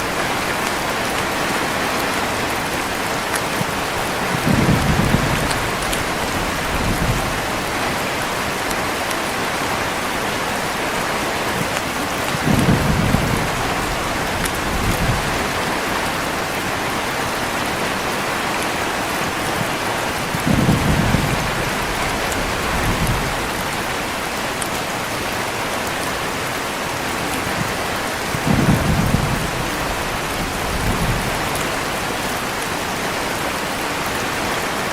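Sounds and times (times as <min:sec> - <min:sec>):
heavy rain falling: 0:00.0 - 0:34.9
low rumbles of thunder: 0:04.1 - 0:08.0, 0:11.5 - 0:16.0, 0:19.6 - 0:24.0, 0:27.6 - 0:31.8.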